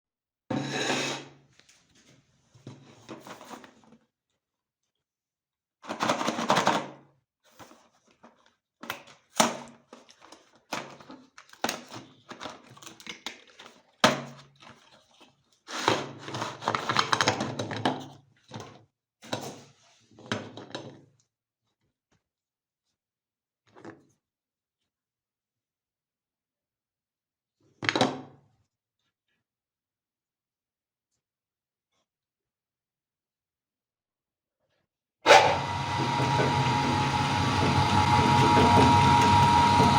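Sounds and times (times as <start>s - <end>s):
grinder crunching cookies: 35.3s - 39.9s
low machine hum: 35.3s - 39.9s.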